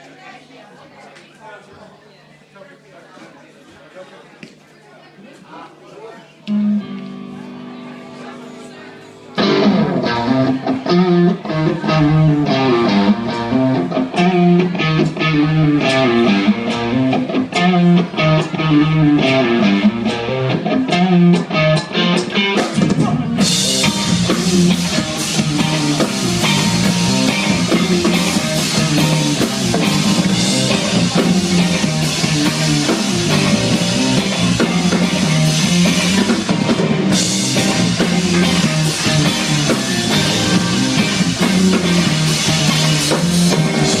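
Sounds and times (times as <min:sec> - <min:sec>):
drums: 0:06.2 - 0:44.0
rock band playing live: 0:06.4 - 0:44.0
repeating guitar riff: 0:09.4 - 0:22.6, 0:23.4 - 0:44.0.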